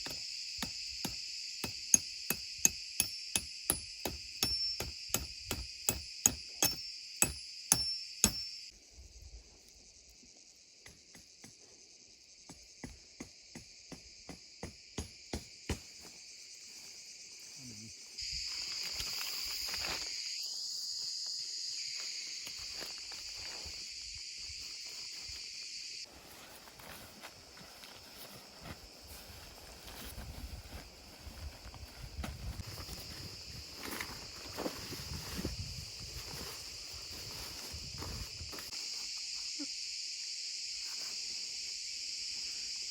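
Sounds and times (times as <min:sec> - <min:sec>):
insect chirring: 0:00.0 - 0:42.9.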